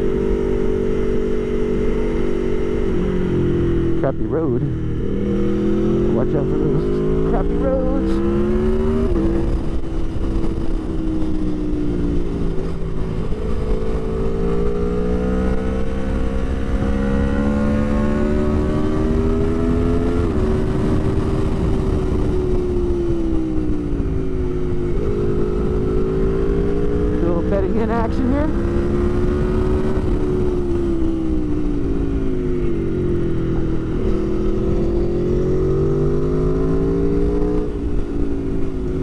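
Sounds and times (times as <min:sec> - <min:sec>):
motorcycle engine shifting gears: 0:00.0 - 0:39.0
wind rush in helmet: 0:08.2 - 0:27.2, 0:28.4 - 0:39.0.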